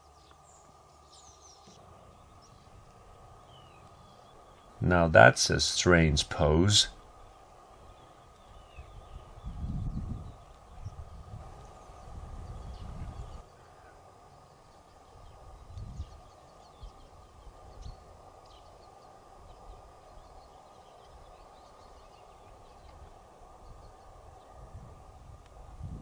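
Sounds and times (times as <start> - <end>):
small birds chirping: 0.0 - 26.0
steady outdoor rush: 0.0 - 26.0
wind buffeting microphone: 6.2 - 14.2, 15.0 - 26.0.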